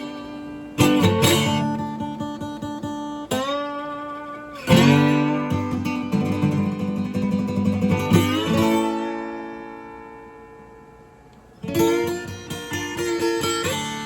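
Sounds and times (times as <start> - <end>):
acoustic guitar chords strummed: 0.0 - 14.0.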